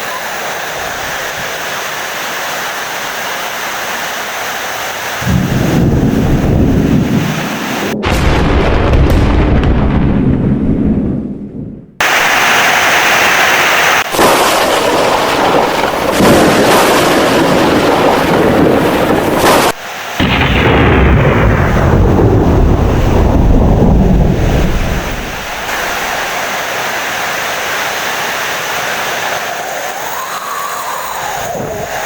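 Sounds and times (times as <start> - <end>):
heavy rain: 0.0 - 9.5, 12.0 - 32.0
rolling thunder: 5.2 - 12.5, 14.0 - 26.4.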